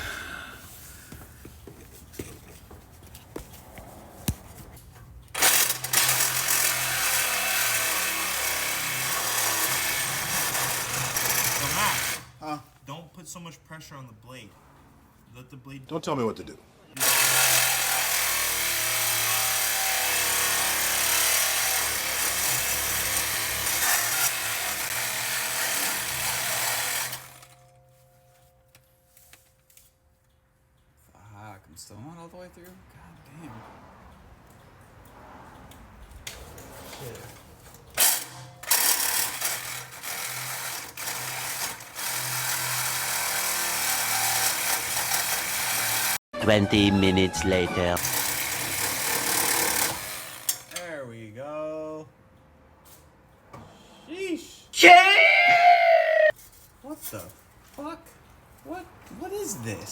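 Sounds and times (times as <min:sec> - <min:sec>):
reciprocating saw cutting pipe: 0:05.4 - 0:12.4, 0:17.0 - 0:27.6, 0:48.0 - 0:50.7.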